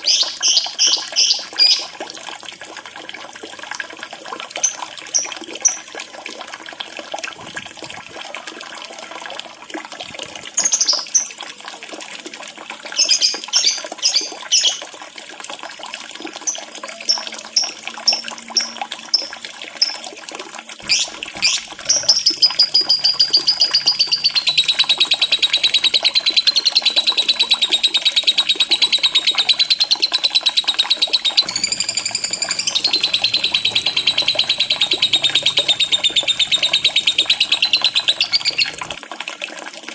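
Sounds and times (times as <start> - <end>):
running water: 0.0 - 39.9
lovebird chattering trill: 20.8 - 39.0
lovebird chirps: 20.8 - 39.0.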